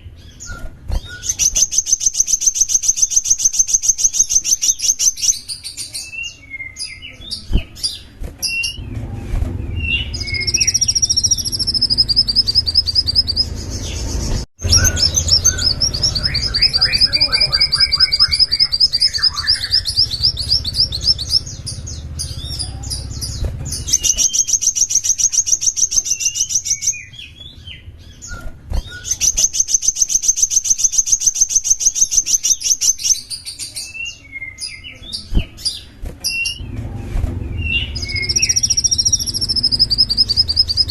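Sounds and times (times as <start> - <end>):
songbird trilling and chirping: 0.0 - 8.9, 9.6 - 36.7, 37.5 - 40.9
low rumble: 8.7 - 19.0, 36.6 - 40.9.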